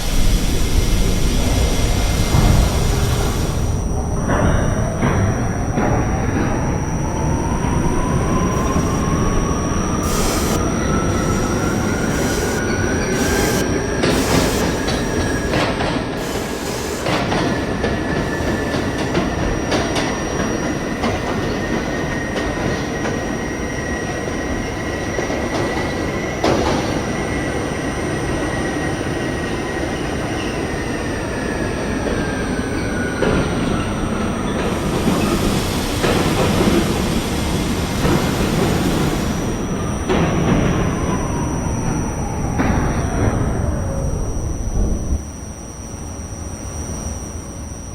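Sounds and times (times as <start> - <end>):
train car rumble: 0.0 - 23.4, 31.9 - 45.4
subway train drive whine: 0.0 - 47.9.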